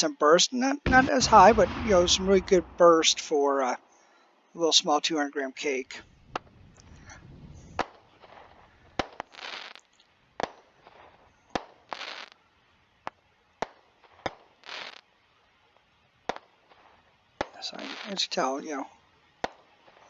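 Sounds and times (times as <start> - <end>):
firework reports: 0.8 - 3.8, 17.5 - 18.9.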